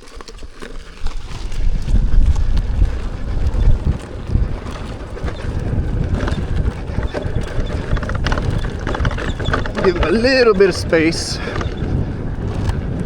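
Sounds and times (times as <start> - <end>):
wind buffeting microphone: 0.4 - 13.0
knocks and rattles: 5.2 - 12.7.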